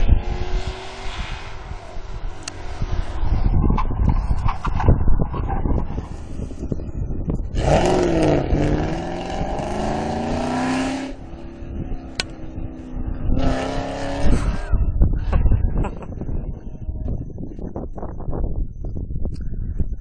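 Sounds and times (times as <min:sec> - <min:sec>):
sports car engine accelerating: 0:00.0 - 0:06.8, 0:07.5 - 0:14.8
another car engine: 0:00.0 - 0:17.2
low rumbling noise: 0:00.0 - 0:20.0.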